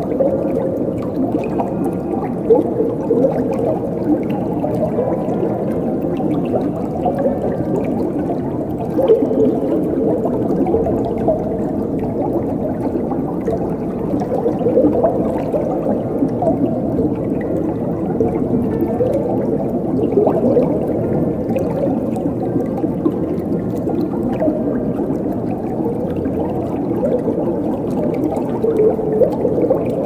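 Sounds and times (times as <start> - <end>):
water flowing and gurgling: 0.0 - 30.0.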